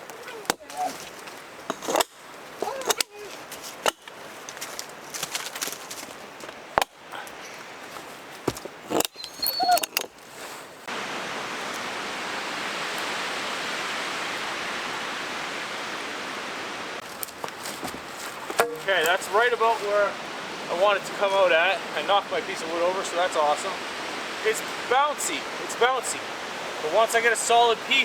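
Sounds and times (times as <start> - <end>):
wooden knocks of log handling: 0.0 - 9.1, 17.0 - 19.3.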